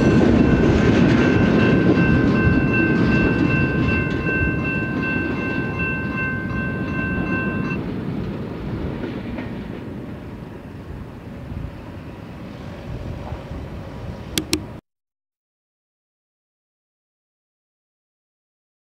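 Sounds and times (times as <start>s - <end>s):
steady bell ringing: 0.0s - 7.8s
train wheels clickety-clack: 0.0s - 10.4s.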